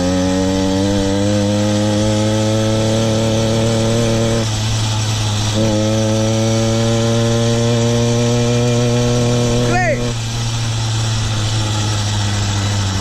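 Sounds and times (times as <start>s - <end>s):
small petrol engine running: 0.0s - 13.0s.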